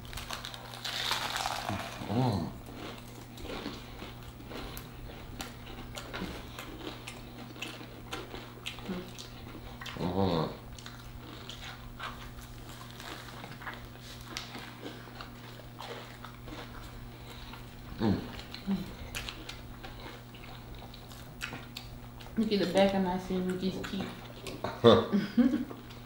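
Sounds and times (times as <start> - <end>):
chewing and crunching fried food: 0.0 - 24.9, 25.5 - 26.0
steady low hum: 0.0 - 26.0
person humming mm: 1.6 - 2.6, 18.0 - 19.0.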